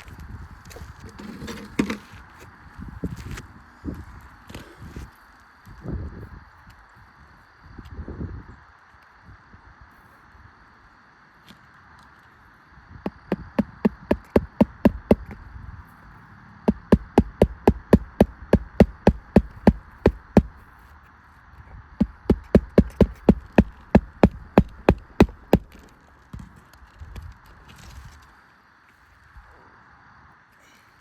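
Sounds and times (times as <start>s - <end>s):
high insect-like hum: 0.0s - 31.0s
rapid hammer taps: 13.1s - 15.4s, 16.7s - 20.6s, 22.0s - 25.8s.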